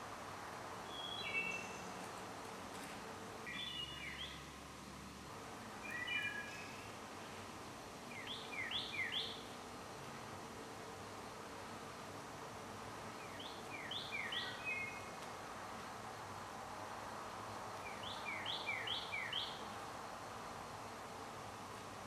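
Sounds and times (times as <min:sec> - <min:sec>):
steady outdoor hiss: 0:00.0 - 0:22.0
songbird whistling: 0:17.8 - 0:19.6.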